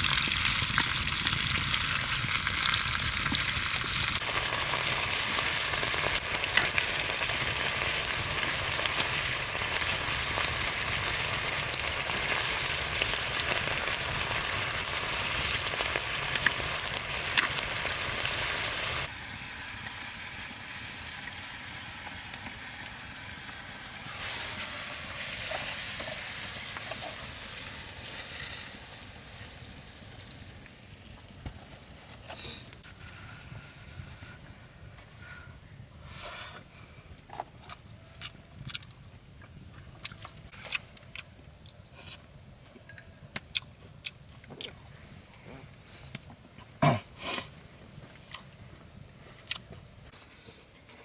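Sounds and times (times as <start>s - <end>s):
food sizzling in a pan: 0.0s - 31.0s.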